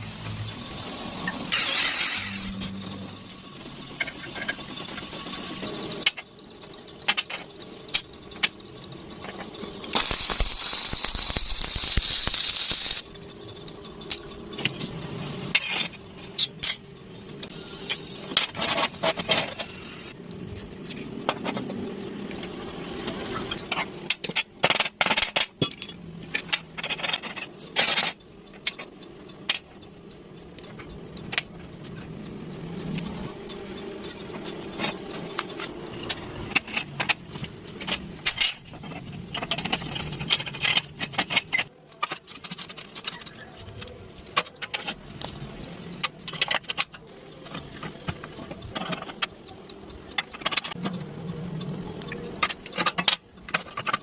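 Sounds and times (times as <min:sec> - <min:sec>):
loud hissing burst: 0:09.9 - 0:13.1
metal parts clinking: 0:23.4 - 0:30.0, 0:34.1 - 0:51.1.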